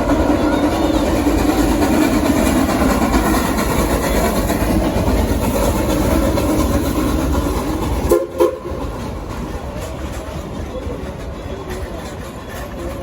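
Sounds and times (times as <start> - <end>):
train rumbling on rails: 0.0 - 13.0
wheels clickety-clack: 0.0 - 13.0.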